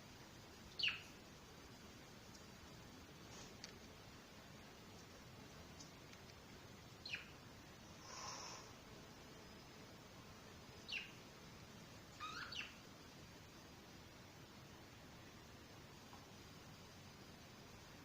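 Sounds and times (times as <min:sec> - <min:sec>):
budgerigars chirping: 0:00.8 - 0:01.1, 0:07.0 - 0:07.3, 0:10.9 - 0:11.2, 0:12.2 - 0:12.8
raspy bird sound: 0:00.8 - 0:01.2, 0:07.0 - 0:07.4, 0:12.1 - 0:12.8.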